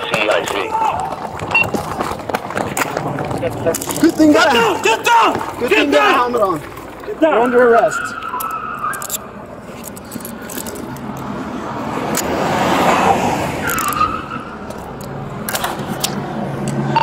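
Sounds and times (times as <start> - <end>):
car passing by: 11.0 - 17.0.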